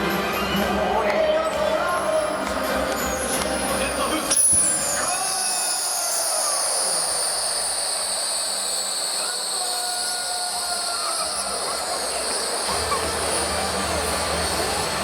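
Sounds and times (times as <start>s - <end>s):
crowd noise rumble: 0.0s - 15.0s
balloons whistling shrilly: 3.1s - 15.0s.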